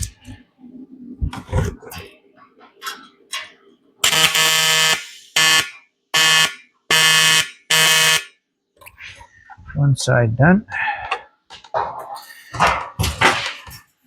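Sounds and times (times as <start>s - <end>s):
welding arc buzzing: 4.0s - 8.3s.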